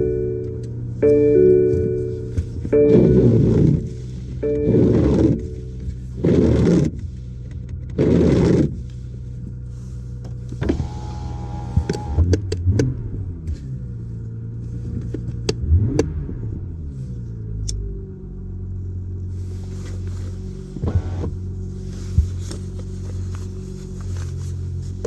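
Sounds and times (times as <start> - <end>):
short steady whine: 0.0 - 5.9
car engine idling and revving: 0.0 - 25.0.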